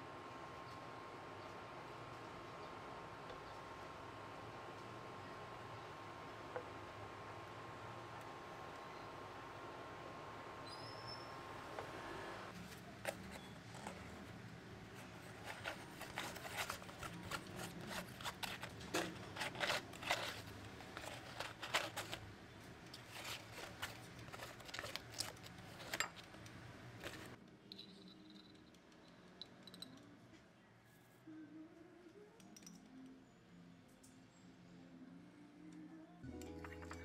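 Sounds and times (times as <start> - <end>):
paper wrapper crinkling: 15.2 - 22.3, 23.0 - 26.0.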